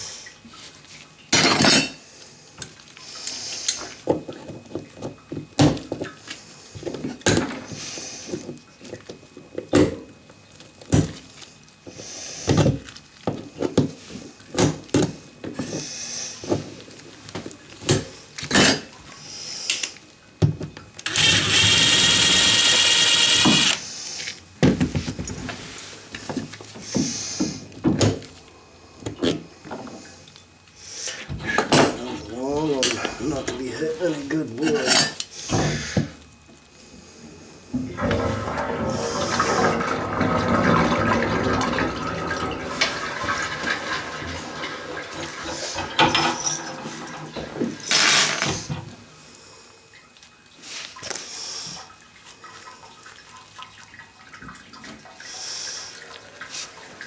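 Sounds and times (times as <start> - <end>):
power drill running: 21.0 - 23.8
hand tools knocking and clattering: 43.2 - 48.4.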